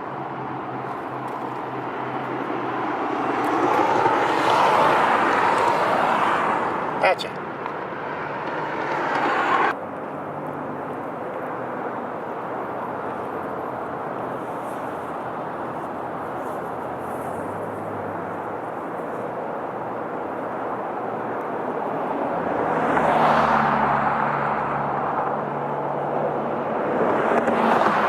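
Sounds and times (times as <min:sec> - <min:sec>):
motor vehicle passing: 0:00.0 - 0:11.0, 0:12.8 - 0:20.5
traffic noise: 0:00.0 - 0:28.0.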